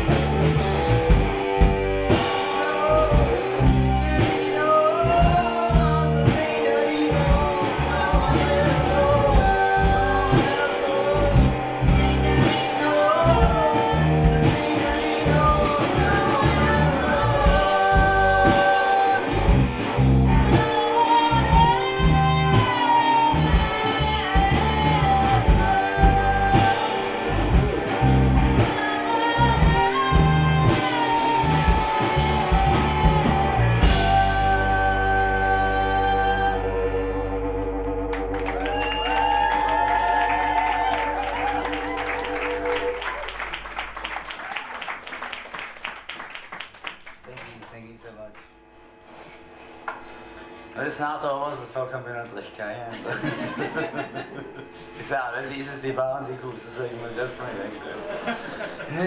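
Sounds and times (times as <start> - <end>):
guitar: 0.0 - 44.4
bass: 0.0 - 45.4
lead singer singing: 2.0 - 37.4.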